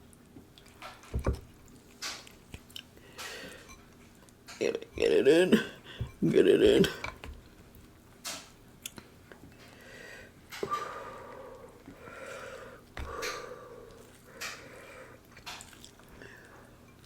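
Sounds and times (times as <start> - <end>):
slurping and chewing: 13.2 - 17.0.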